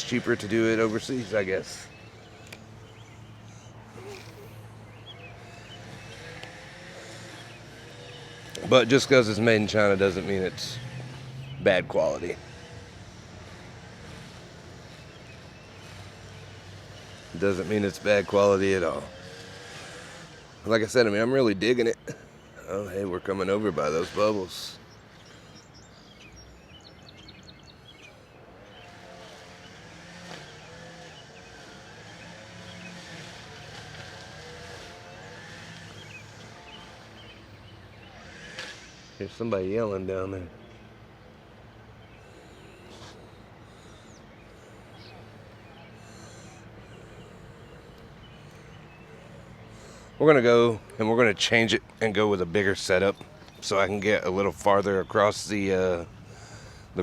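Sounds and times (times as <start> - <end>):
distant motor humming: 0.0 - 57.0
faint bird chirps: 1.9 - 6.5.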